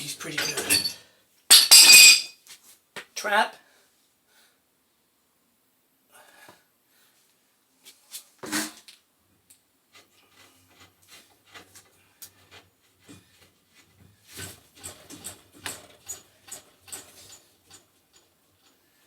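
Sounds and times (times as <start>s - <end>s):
hand tools clicking and scraping: 0.0s - 2.3s, 10.0s - 19.0s.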